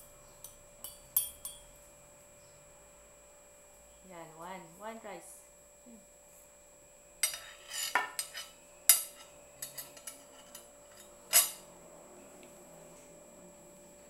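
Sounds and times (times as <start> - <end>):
spoon scraping a bowl: 7.2 - 11.6.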